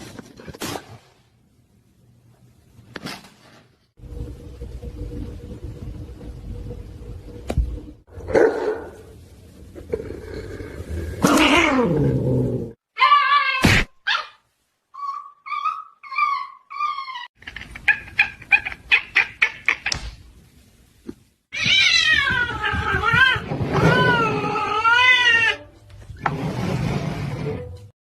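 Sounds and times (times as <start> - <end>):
cat meowing and yowling: 21.5 - 25.6.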